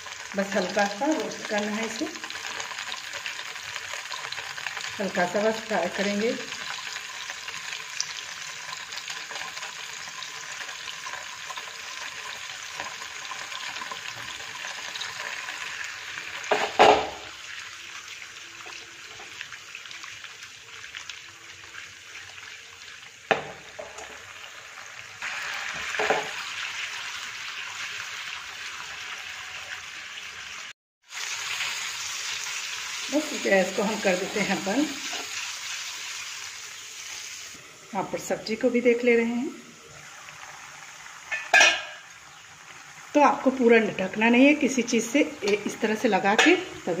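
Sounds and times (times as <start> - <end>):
cheese sizzling in frying pan: 0.0 - 47.0
sharp knocks in pan: 16.5 - 17.3, 23.3 - 24.2, 25.8 - 26.4, 41.3 - 42.0.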